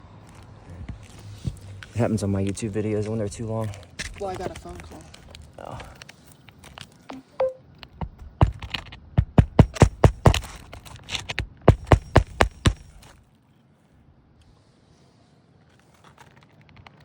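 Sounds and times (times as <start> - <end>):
hammer striking nails: 8.0 - 13.1.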